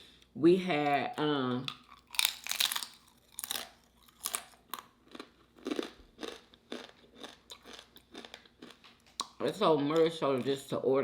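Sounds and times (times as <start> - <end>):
person chewing crunchy food: 1.5 - 10.6.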